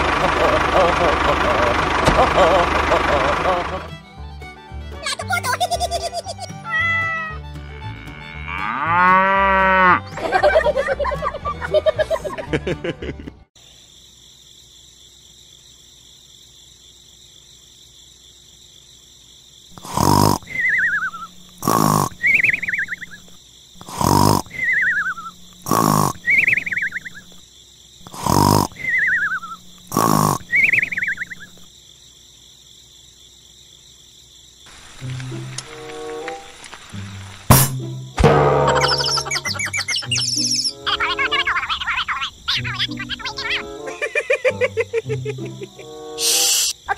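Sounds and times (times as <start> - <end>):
faint high-pitched night background: 5.0 - 46.9
cow mooing: 7.5 - 10.0
cartoon snoring: 19.8 - 20.9, 21.6 - 22.4, 23.8 - 24.9, 25.6 - 26.5, 28.0 - 29.2, 29.9 - 30.6
falling whistle: 46.2 - 46.7.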